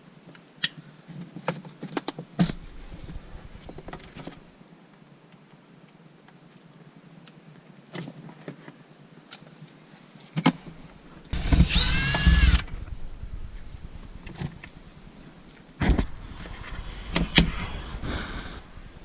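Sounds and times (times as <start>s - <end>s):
power drill whine: 11.4s - 15.1s, 15.8s - 19.0s.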